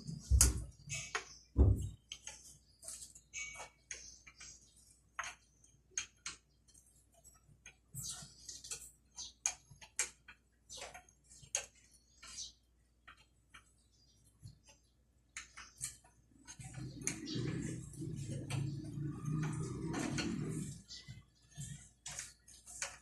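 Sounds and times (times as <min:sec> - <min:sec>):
rough rubbing scraping: 0:16.6 - 0:23.0.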